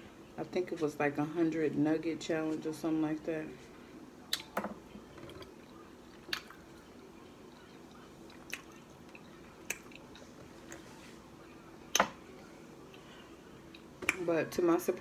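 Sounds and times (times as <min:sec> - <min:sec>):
person chewing with mouth clicks: 0:07.9 - 0:10.8.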